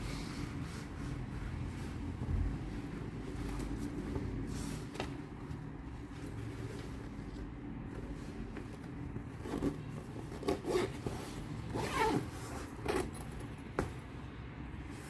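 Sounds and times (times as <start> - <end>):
zipper pulled: 9.4 - 13.3.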